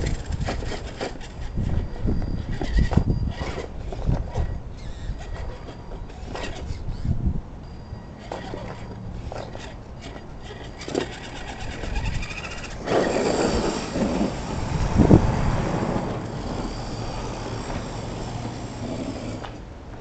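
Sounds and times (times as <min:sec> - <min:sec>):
electric motor whining: 0:00.0 - 0:19.7
tyres crunching over ground: 0:08.0 - 0:20.0.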